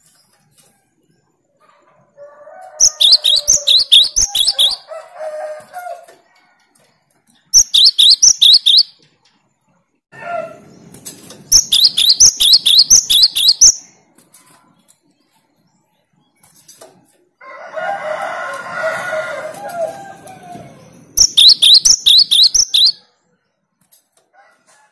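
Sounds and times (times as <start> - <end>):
bird singing rapid high notes: 2.8 - 4.9, 7.6 - 9.0, 11.5 - 14.0, 21.0 - 23.0
longer lower bird call: 2.8 - 4.9, 7.6 - 9.0, 11.6 - 13.8, 21.2 - 23.0.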